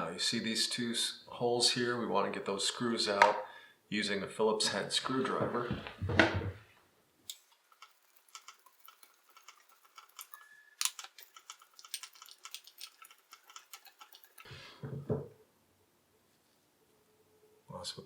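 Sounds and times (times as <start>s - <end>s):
screwdriver small clicks: 8.4s - 14.4s.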